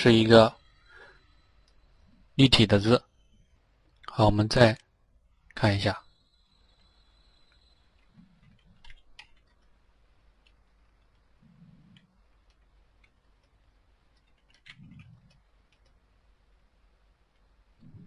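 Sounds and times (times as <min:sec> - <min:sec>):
computer mouse clicks: 0:07.5 - 0:16.0.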